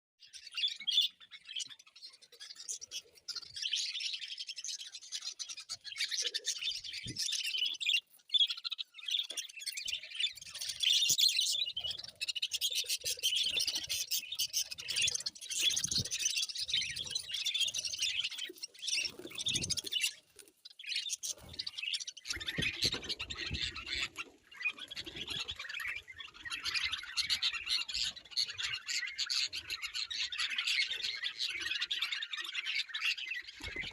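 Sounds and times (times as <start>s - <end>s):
birds chirping and squawking: 0.2s - 33.9s.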